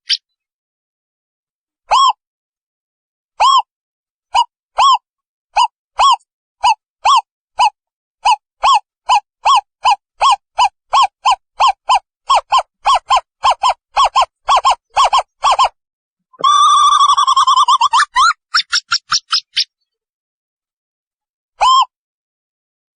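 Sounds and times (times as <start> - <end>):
owl hooting whistled notes: 16.4 - 19.5.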